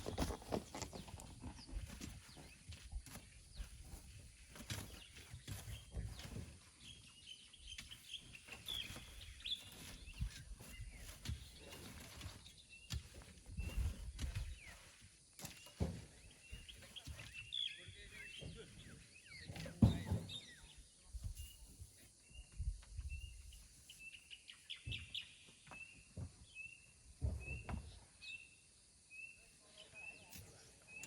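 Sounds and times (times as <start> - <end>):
knocks scrapes and thumps: 0.0 - 7.0, 7.7 - 21.4
small birds chirping: 0.0 - 31.0.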